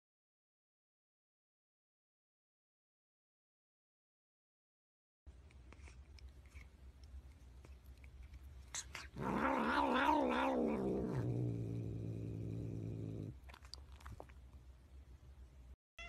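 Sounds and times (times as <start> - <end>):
cat yowling: 9.2 - 11.3.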